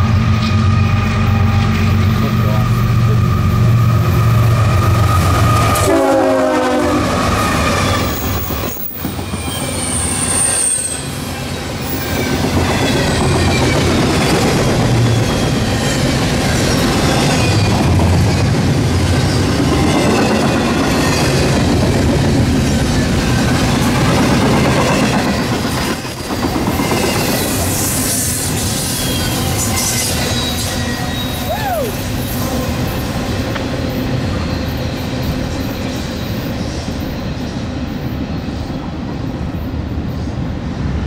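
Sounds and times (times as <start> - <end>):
freight train wheels rumbling: 0.0 - 41.0
high wheel squeal: 0.4 - 6.0, 7.0 - 17.8, 26.8 - 33.1, 33.7 - 37.7.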